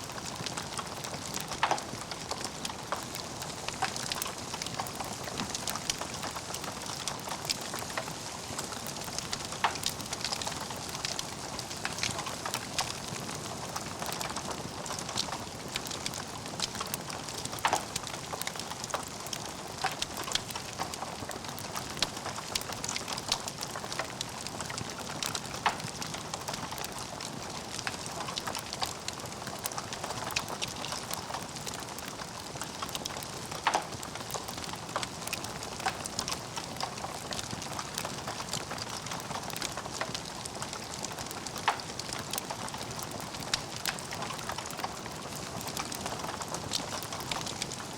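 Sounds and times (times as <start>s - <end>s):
wood fire crackling: 0.0s - 47.9s
fire pops: 15.1s - 23.4s.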